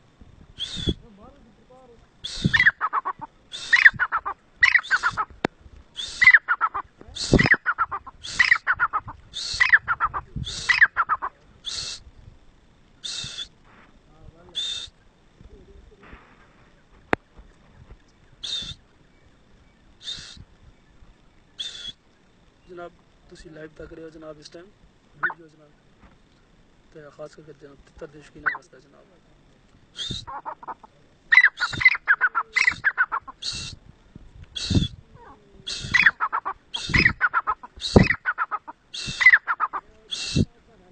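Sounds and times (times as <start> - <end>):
bird harsh high calls: 0.6 - 1.0, 2.2 - 5.4, 6.0 - 12.1, 13.0 - 13.6, 14.6 - 15.0, 18.3 - 22.0, 25.2 - 25.4, 28.3 - 28.7, 29.9 - 33.8, 34.6 - 35.0, 35.6 - 40.5.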